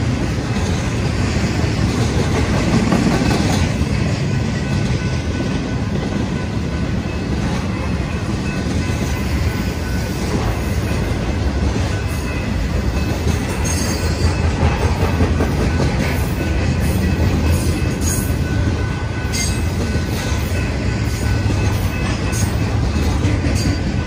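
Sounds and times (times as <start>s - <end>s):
train rumbling on rails: 0.0s - 24.0s.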